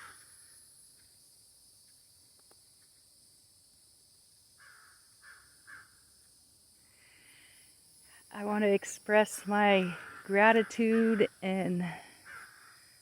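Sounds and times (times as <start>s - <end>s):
crow cawing faintly: 4.6s - 6.0s, 9.9s - 11.3s, 12.2s - 12.9s.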